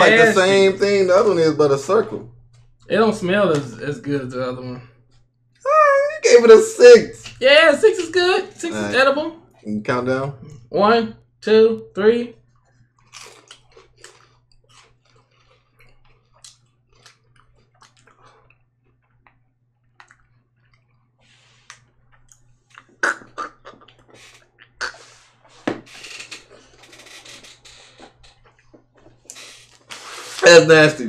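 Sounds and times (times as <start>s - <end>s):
people chewing crunchy snack: 12.5s - 30.4s
mouth clicks: 21.7s - 25.2s
breathy mouth and nose noises: 22.8s - 30.4s.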